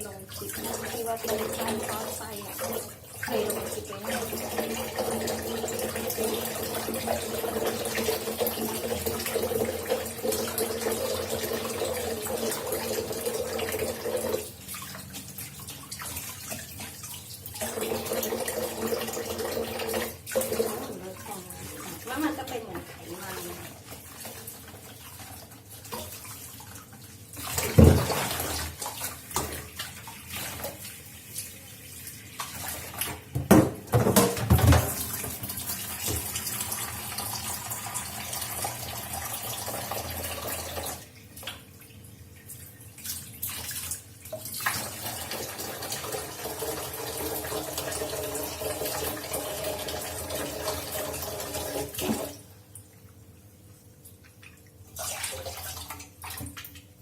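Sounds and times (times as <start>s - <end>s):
tap running into a sink: 27.4s - 29.7s, 33.0s - 36.7s, 45.8s - 52.4s.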